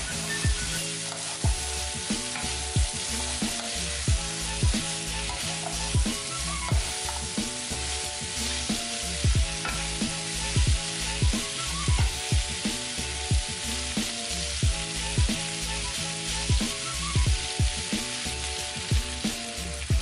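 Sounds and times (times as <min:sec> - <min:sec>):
wooden spatula stirring: 0:00.0 - 0:10.1
green beans sizzling in wok: 0:00.0 - 0:20.0
music with kick drum and bass: 0:00.0 - 0:20.0.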